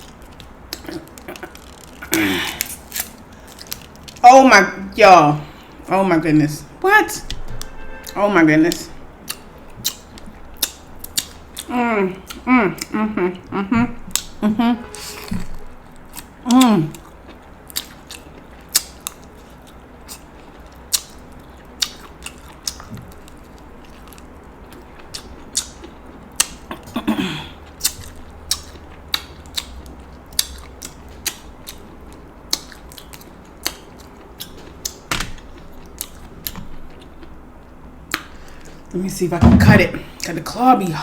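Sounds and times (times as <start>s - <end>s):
wet chewing and mouth smacks: 8.9s - 11.7s, 15.4s - 26.8s, 27.6s - 38.8s.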